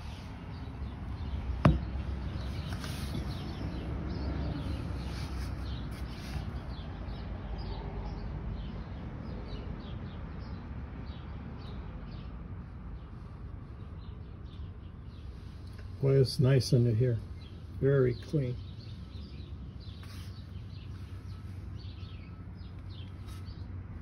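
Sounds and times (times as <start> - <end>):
small birds chirping: 0.0 - 24.0
sharp knock: 1.6 - 2.0.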